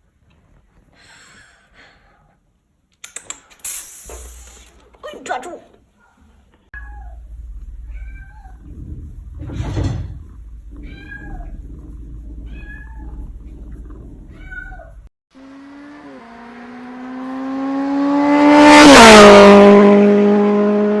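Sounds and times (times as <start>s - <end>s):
cat meowing: 6.8s - 7.2s, 7.8s - 8.7s, 10.7s - 11.6s, 12.4s - 13.3s, 14.3s - 15.1s
low hum: 6.8s - 15.1s.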